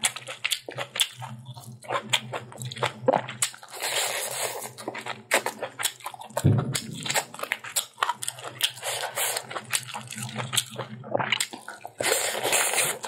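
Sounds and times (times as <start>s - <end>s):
wet chewing and mouth clicks: 0.0s - 13.0s
dull thump: 6.4s - 7.1s.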